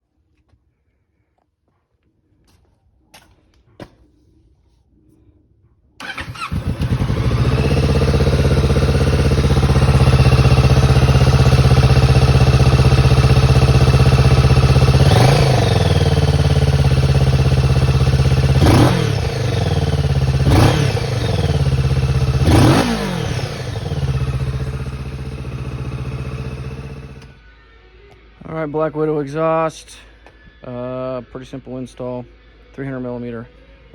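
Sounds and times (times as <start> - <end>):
motorcycle engine idling and revving: 6.0 - 27.4.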